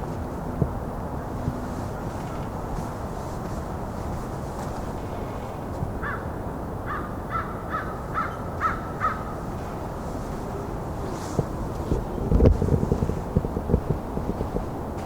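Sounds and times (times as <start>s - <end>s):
crow cawing: 5.0s - 10.8s.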